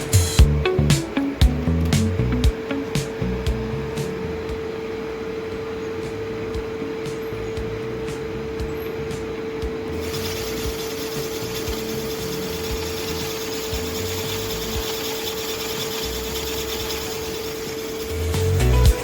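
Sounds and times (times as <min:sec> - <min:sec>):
boring machine whining: 0:00.0 - 0:19.0
cutter scraping through metal: 0:10.0 - 0:19.0.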